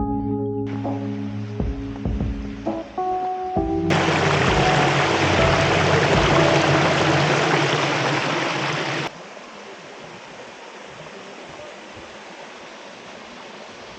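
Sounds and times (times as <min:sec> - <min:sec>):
stream water rushing: 0:03.9 - 0:13.9.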